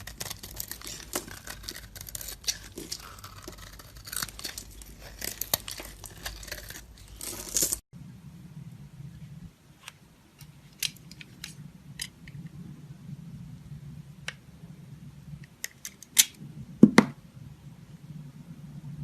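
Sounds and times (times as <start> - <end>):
dry soap being cut: 0.0 - 7.8
faint low hum: 0.0 - 19.0.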